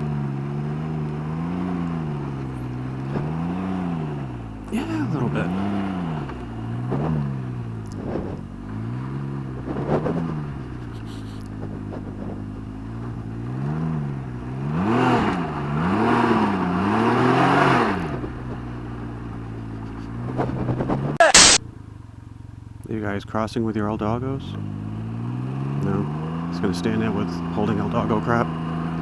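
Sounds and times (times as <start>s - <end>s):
motorcycle engine idling and revving: 0.0s - 29.0s
rushing exhaust noise: 2.4s - 13.3s.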